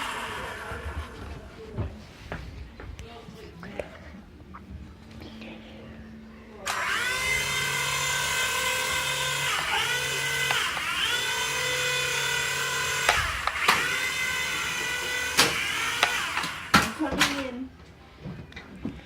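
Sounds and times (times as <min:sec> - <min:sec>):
toy helicopter rotor whine: 0:00.0 - 0:01.6, 0:06.7 - 0:17.4.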